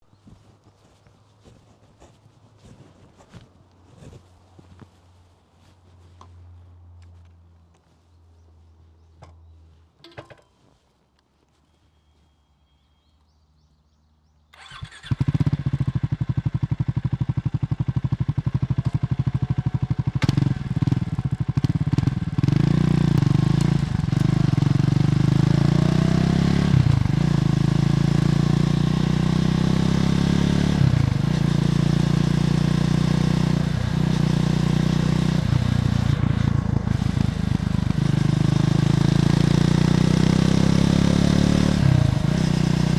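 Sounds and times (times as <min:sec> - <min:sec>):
motorcycle engine running and revving: 0:14.6 - 0:42.9.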